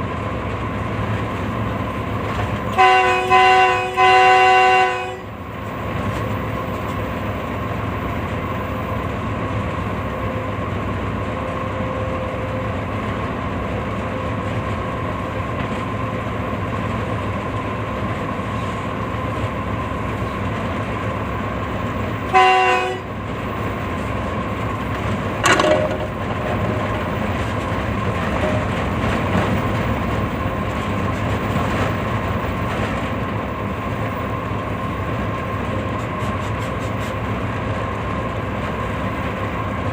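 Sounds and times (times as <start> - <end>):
train rumble: 0.0 - 39.9
locomotive horn: 2.7 - 5.4, 11.3 - 12.9, 22.2 - 23.2.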